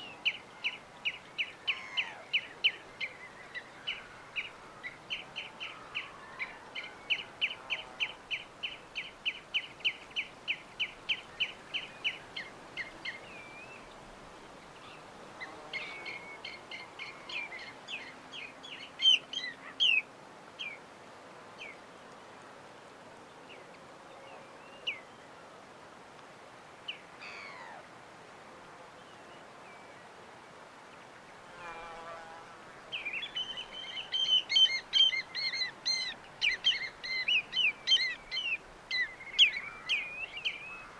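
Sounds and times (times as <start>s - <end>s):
birds chirping: 0.0s - 20.8s, 32.8s - 40.9s.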